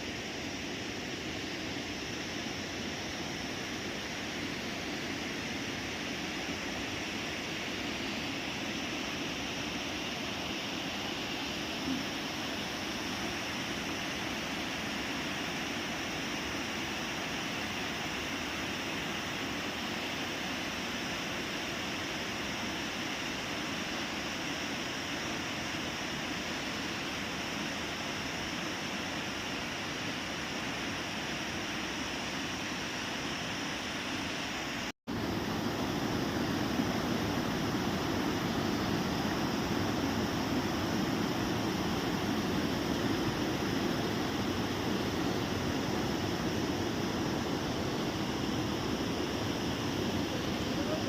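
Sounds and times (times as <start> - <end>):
waterfall rushing water: 0.0 - 51.0.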